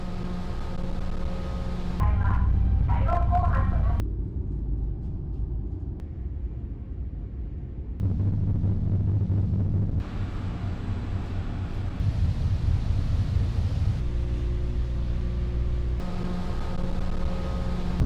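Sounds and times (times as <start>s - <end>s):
low engine rumble: 8.0s - 18.0s.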